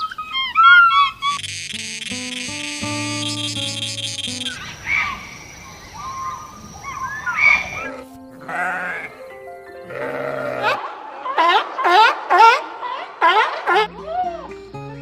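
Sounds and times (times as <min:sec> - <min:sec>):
background music: 0:07.3 - 0:15.0
livestock bleating: 0:07.8 - 0:09.2, 0:09.8 - 0:10.8.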